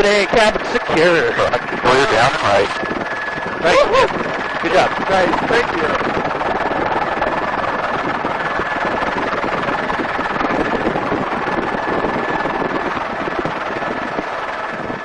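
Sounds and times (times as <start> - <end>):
helicopter engine and rotor noise: 0.0 - 15.0
rushing wind: 0.0 - 15.0
thin high whine: 0.0 - 15.0.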